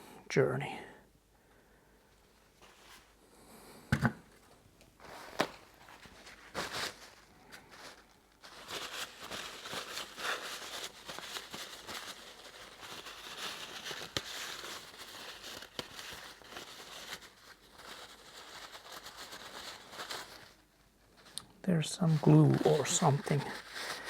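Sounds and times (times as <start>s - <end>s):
paper towel crinkling: 5.0s - 24.0s.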